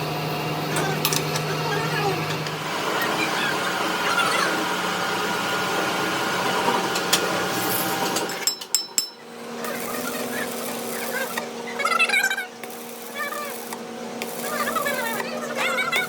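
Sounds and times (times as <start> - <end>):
machine hum: 0.0 - 8.4, 9.0 - 16.0
workshop clattering: 6.9 - 11.5.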